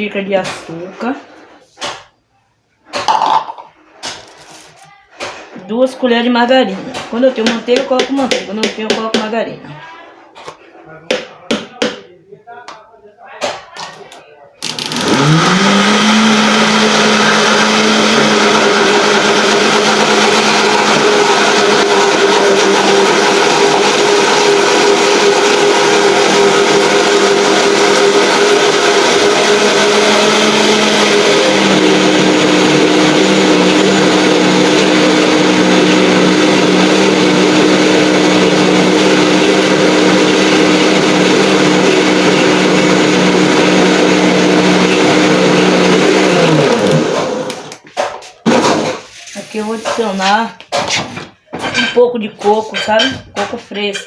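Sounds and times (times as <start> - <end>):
electric mixer motor running: 14.6 - 47.8.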